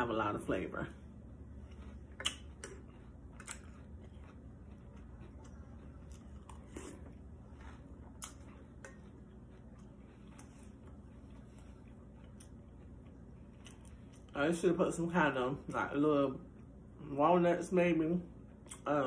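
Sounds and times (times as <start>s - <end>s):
person chewing cereal: 0.9s - 14.4s.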